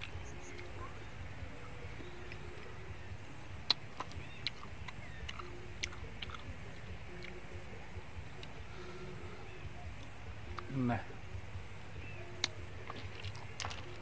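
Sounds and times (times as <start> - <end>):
chewing: 3.6 - 7.4, 12.4 - 14.0.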